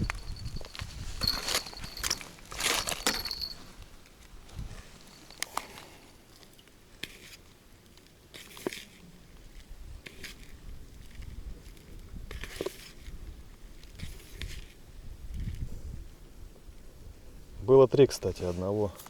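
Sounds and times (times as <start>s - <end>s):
short rustling: 0.0s - 5.9s.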